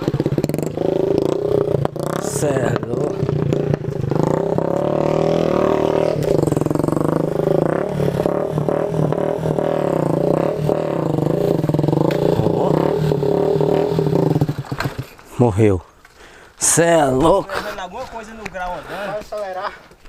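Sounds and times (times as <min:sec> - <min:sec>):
small motorcycle engine revving: 0:00.0 - 0:15.3.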